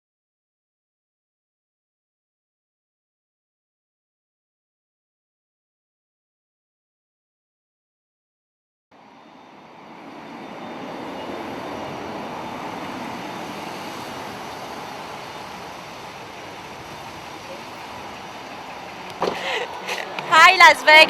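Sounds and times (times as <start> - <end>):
rushing air: 9.0 - 21.0
vehicle engine: 9.0 - 21.0.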